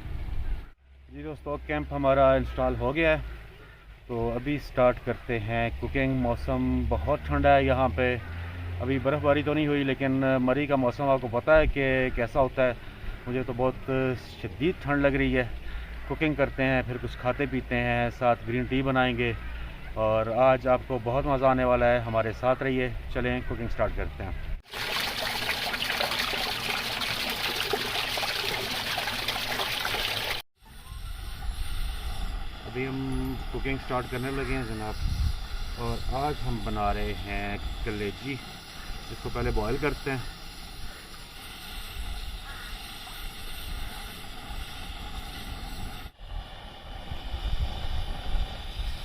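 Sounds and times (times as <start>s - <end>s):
running water trickling: 24.6s - 30.4s
wind buffeting microphone: 31.2s - 38.0s, 43.2s - 49.0s.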